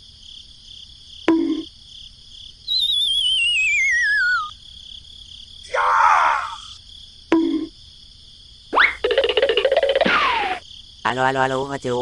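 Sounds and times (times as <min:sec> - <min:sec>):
crickets chirring: 0:00.0 - 0:12.0
warbling descending whistle: 0:02.7 - 0:04.5.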